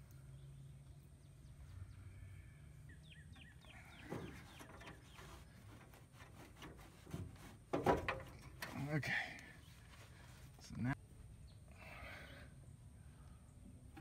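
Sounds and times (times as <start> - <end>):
bird chirping: 0.0 - 6.0, 11.3 - 13.7.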